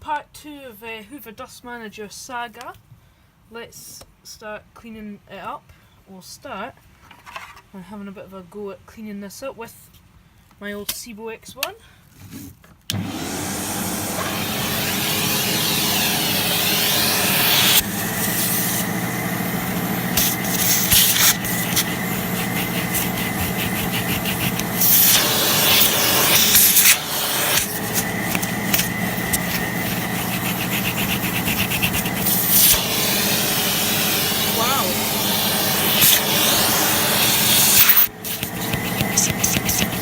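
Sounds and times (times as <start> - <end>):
vacuum cleaner running with whine: 12.9 - 40.0.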